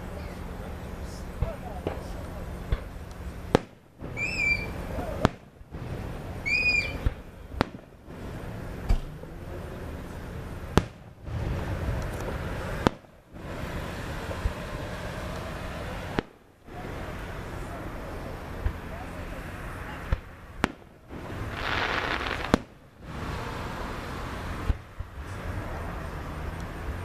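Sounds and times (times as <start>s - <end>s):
firework shells bursting: 0.4s - 27.0s.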